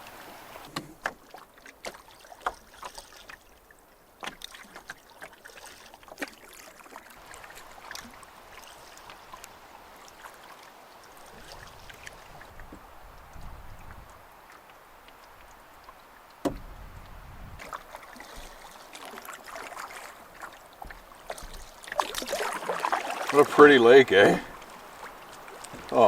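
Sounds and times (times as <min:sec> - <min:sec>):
soft water wash: 0:00.0 - 0:26.0
paddle knocking against hull: 0:00.7 - 0:03.6, 0:04.2 - 0:08.2, 0:15.2 - 0:26.0.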